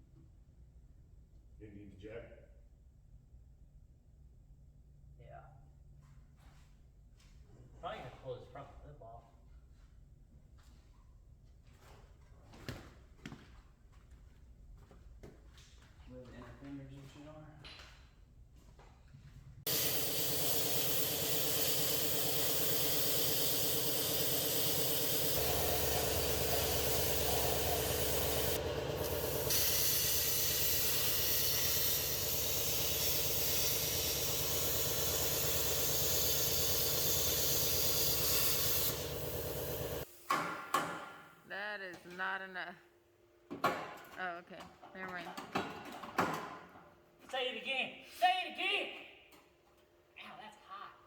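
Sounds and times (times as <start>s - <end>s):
plasma cutter hissing: 19.7s - 40.0s.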